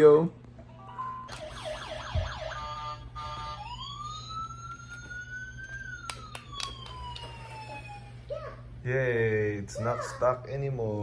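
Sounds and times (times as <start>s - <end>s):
electronic siren yelping and wailing: 1.0s - 8.3s.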